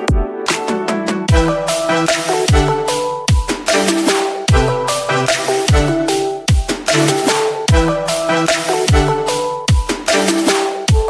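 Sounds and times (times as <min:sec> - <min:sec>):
electronic music with beat: 0:00.0 - 0:11.0
synth melody: 0:01.3 - 0:11.0
snare hits: 0:02.1 - 0:07.8, 0:08.5 - 0:11.0.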